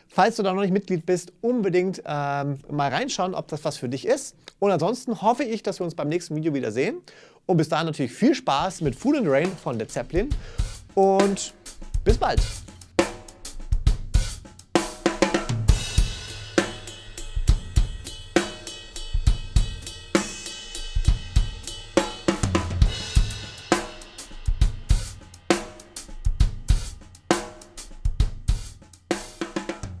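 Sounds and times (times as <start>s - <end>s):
drum kit shuffle groove: 8.5s - 30.0s.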